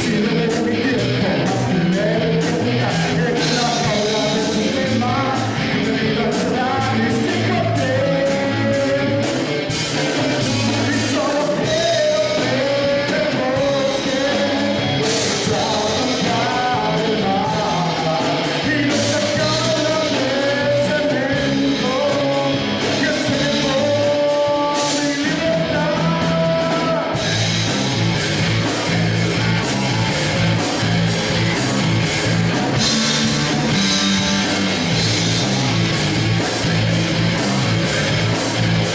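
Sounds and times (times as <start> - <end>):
person singing: 0.0 - 27.4
rock band playing: 0.0 - 38.9.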